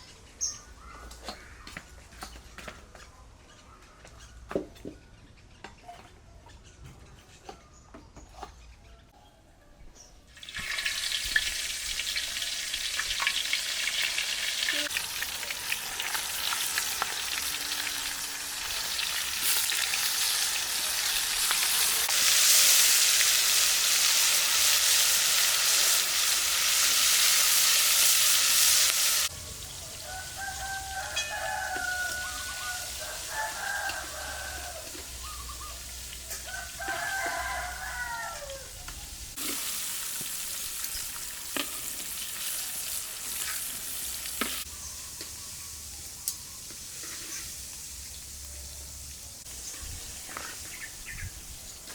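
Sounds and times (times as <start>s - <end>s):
crabs sizzling in a pan: 10.4s - 38.6s, 39.3s - 51.2s
rooster crowing: 29.6s - 35.2s, 36.3s - 38.8s.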